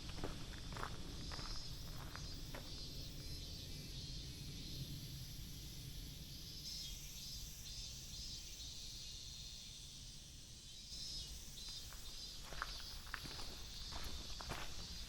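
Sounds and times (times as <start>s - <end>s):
footsteps on trail: 0.0s - 2.8s, 11.6s - 15.0s
insects chirring: 0.0s - 15.0s.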